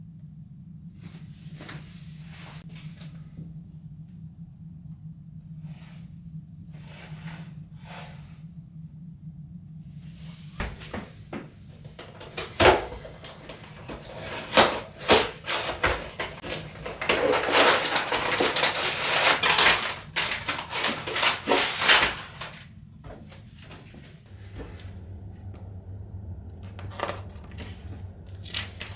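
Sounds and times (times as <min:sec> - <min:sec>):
packaging rustling: 0:11.9 - 0:22.7
packaging clicks and knocks: 0:12.0 - 0:22.6.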